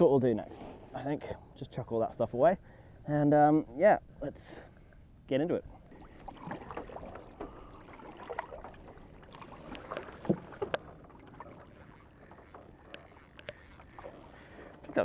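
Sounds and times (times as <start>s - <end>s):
water sloshing and dripping: 5.7s - 15.0s
paddle knocks: 9.3s - 11.2s.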